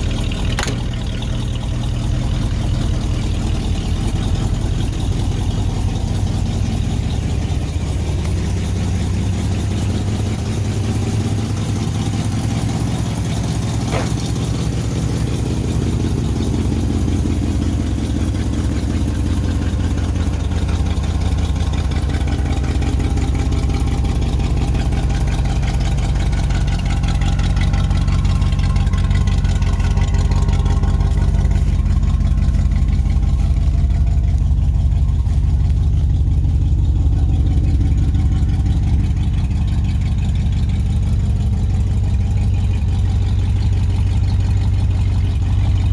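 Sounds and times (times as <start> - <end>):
truck engine idling: 0.0 - 45.9.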